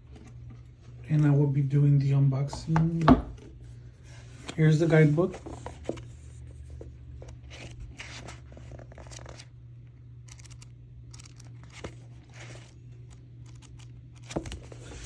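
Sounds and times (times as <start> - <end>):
low electrical hum: 0.0 - 15.0
paper and packaging rustling: 4.1 - 9.5.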